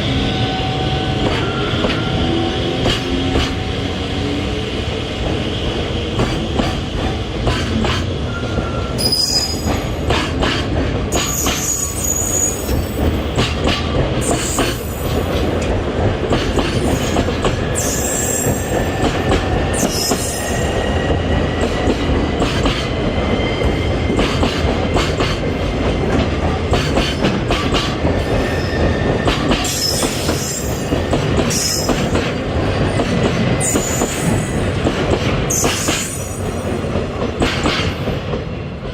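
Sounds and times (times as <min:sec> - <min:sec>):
freight train wheels rumbling: 0:00.0 - 0:38.9
high wheel squeals: 0:08.3 - 0:09.9, 0:11.2 - 0:13.0.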